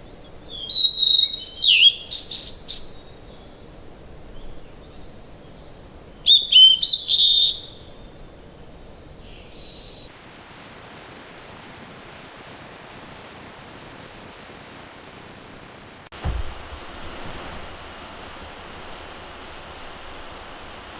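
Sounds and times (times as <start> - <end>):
songbirds chirping: 0.0 - 10.3
low background hiss: 0.0 - 20.9
rain hiss: 10.1 - 20.9.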